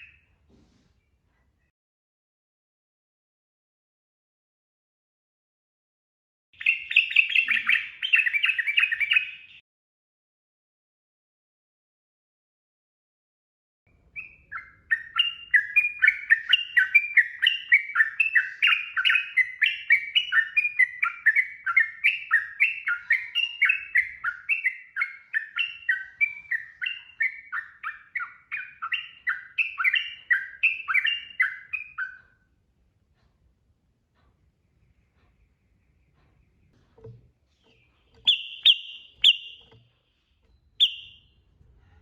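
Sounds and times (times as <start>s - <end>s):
bird singing bubbly song: 6.6s - 9.6s, 14.1s - 32.4s, 34.8s - 41.4s.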